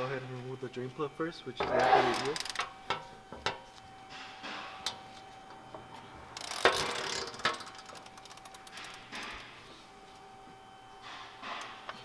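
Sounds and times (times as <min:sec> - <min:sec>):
socket ratchet clicking: 0:06.4 - 0:09.3.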